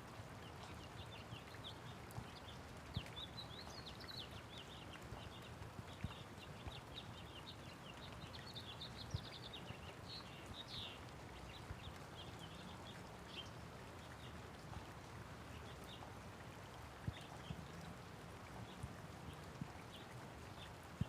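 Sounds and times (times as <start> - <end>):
light rain hiss: 0.0 - 21.0
small birds twittering: 0.5 - 14.7.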